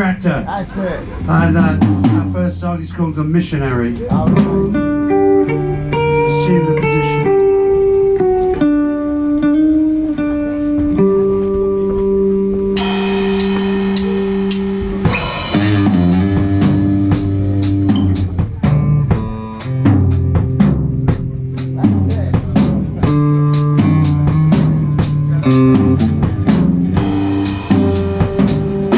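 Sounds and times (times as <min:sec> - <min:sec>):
drums playing steady beat: 0:00.0 - 0:08.6, 0:10.8 - 0:28.9
bass guitar: 0:00.0 - 0:28.9
electric guitar sustained notes: 0:04.2 - 0:18.2.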